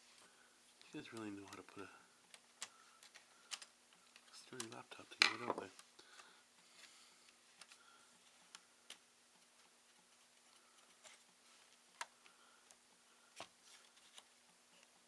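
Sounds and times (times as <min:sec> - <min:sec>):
laptop parts clicking and tapping: 0:02.3 - 0:06.3.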